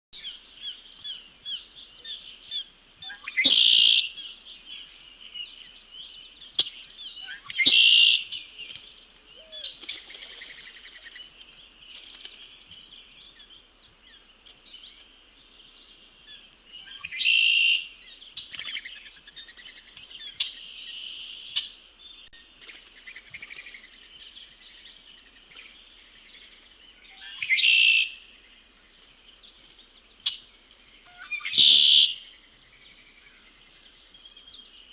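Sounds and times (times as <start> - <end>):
loud short bird calls: 31.0 - 32.3.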